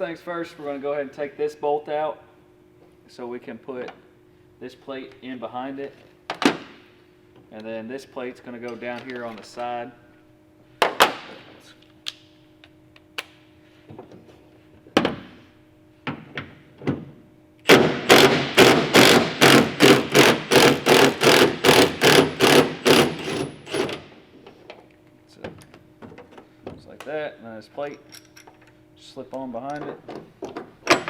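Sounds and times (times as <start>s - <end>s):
faint steady hum: 0.0s - 31.0s
hand ratchet rasping: 17.7s - 24.0s.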